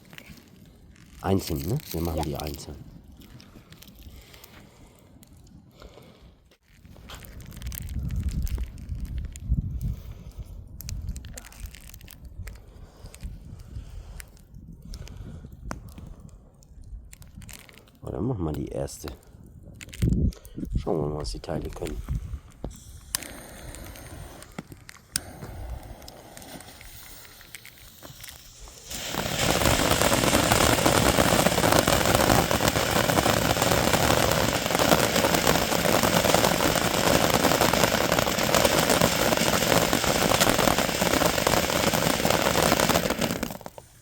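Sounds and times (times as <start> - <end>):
firework fountain crackling hiss: 0.0 - 2.9, 7.0 - 13.2, 21.6 - 44.0.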